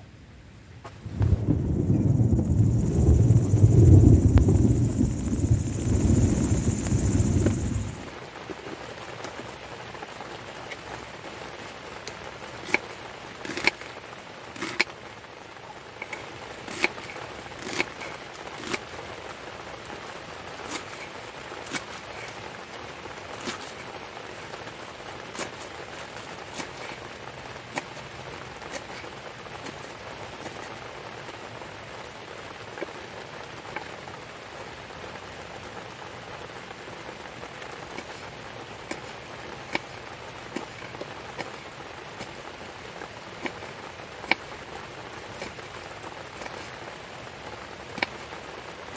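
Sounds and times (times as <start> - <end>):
rain hiss: 0.0 - 48.9
loud low rush: 0.9 - 8.2.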